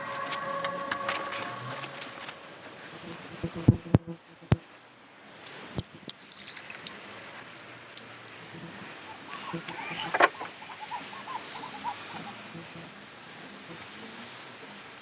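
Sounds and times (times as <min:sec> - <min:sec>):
small ticks: 0:05.8 - 0:08.6.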